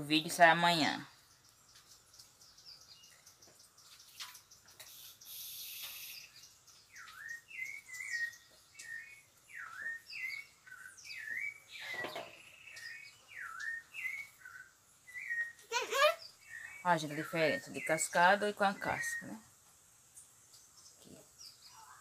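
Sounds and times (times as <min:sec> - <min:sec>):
brief hiss: 0:04.9 - 0:06.4
bird whistling: 0:04.9 - 0:16.8.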